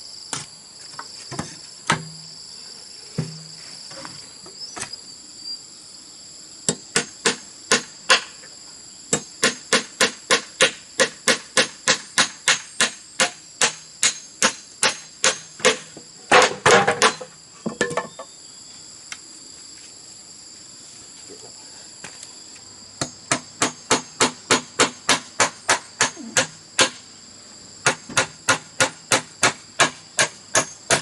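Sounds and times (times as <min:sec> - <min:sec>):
insects shrilling: 0:00.0 - 0:16.4
hand tool striking bamboo: 0:01.3 - 0:02.2, 0:06.7 - 0:08.4, 0:09.1 - 0:18.2, 0:23.0 - 0:27.0, 0:27.8 - 0:31.0.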